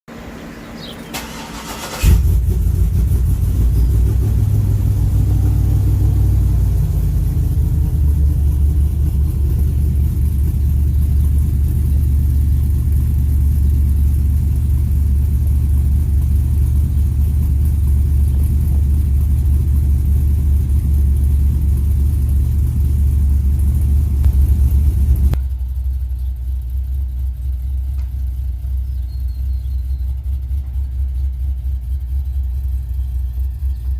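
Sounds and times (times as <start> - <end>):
loping engine high idle: 0.1 - 33.9
starter motor cranking: 1.1 - 2.5.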